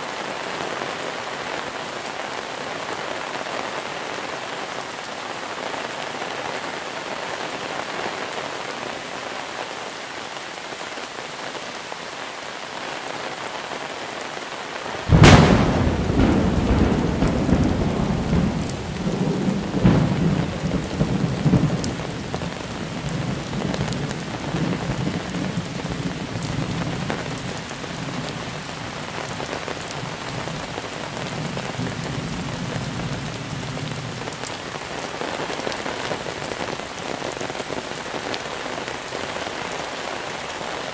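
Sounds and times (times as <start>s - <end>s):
heavy rain falling: 0.0s - 40.9s
thunderclap and rumble: 15.0s - 29.4s.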